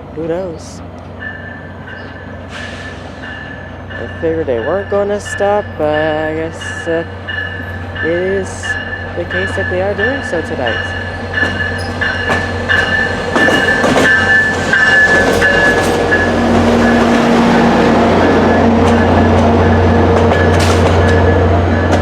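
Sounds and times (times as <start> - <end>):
train wheels clicking over rail: 11.4 - 17.2, 18.8 - 22.0.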